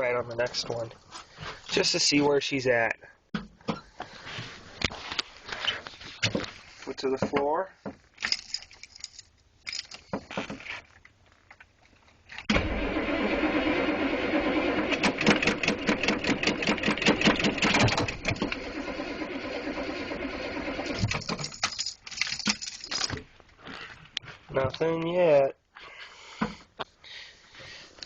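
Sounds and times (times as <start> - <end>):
diesel engine starter cranking: 12.5 - 21.6.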